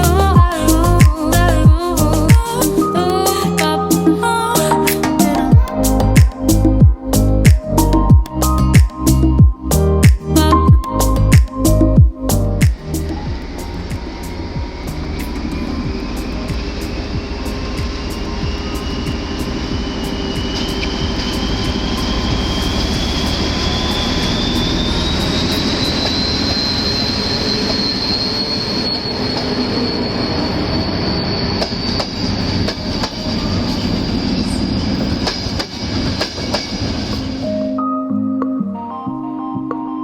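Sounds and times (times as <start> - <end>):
high whine rising in pitch: 0.0 - 39.5
train rumbling on rails: 10.9 - 37.6
rail clicks: 12.7 - 37.5.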